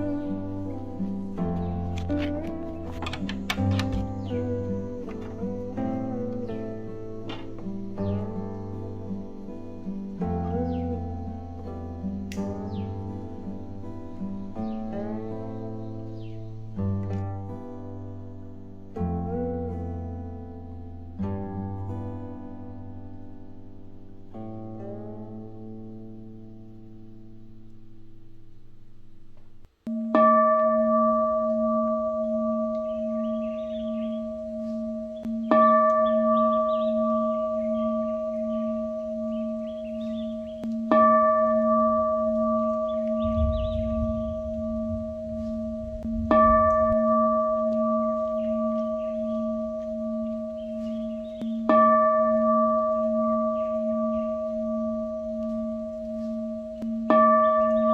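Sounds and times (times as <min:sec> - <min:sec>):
plucked-string music: 0:00.0 - 0:57.9
singing bowl ringing: 0:29.9 - 0:57.9
faint bird-like chirps: 0:32.8 - 0:40.9, 0:48.0 - 0:51.7.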